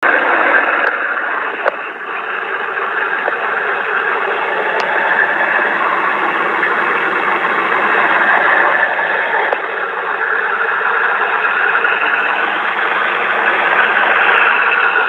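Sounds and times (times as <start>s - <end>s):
strong wind blowing: 3.1s - 9.2s, 11.4s - 15.0s.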